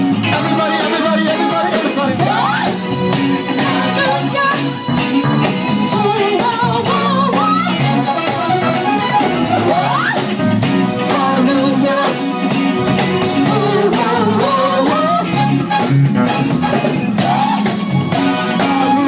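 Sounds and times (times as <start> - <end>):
live funk band playing: 0.0 - 19.0.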